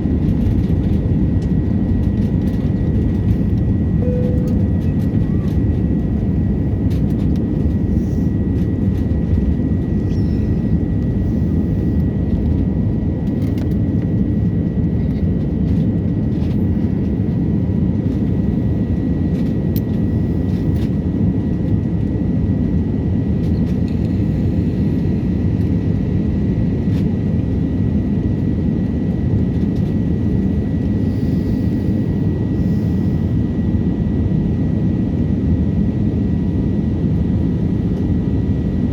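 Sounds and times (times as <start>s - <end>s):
jet engines roaring: 0.0s - 26.2s
faint steady high tone: 4.0s - 5.6s.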